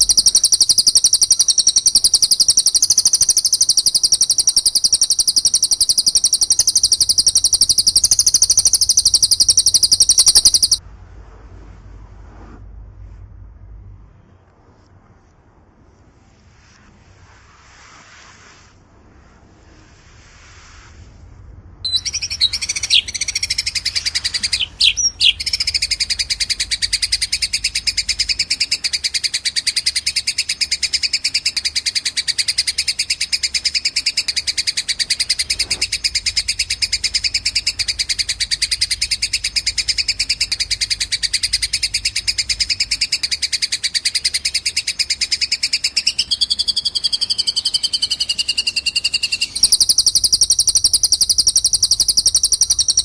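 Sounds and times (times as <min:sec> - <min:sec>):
sharp sweeping bird notes: 0:00.0 - 0:10.8, 0:21.9 - 0:53.0
songbird high-pitched trill: 0:00.0 - 0:10.8, 0:21.9 - 0:53.0.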